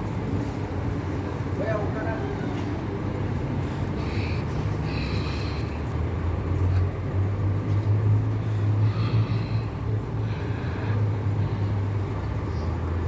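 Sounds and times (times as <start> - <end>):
diesel engine idling: 2.8 - 13.0.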